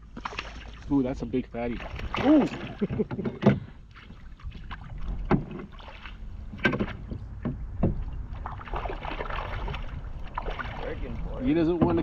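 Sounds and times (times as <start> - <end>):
wind rumble on microphone: 4.3 - 12.0.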